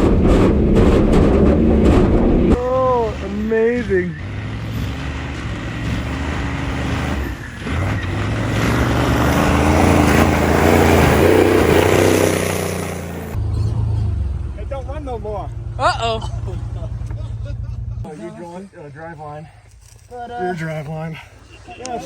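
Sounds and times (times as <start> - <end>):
rush of noise: 0.0 - 4.3
diesel truck engine working hard: 0.0 - 18.1.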